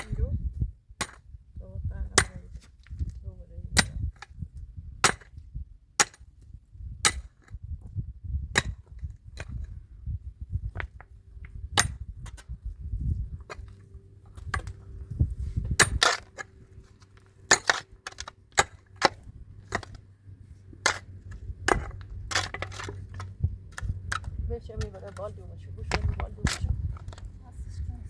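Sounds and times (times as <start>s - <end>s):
low rumble: 0.0s - 28.0s
sharp clicks and knocks: 20.8s - 25.3s.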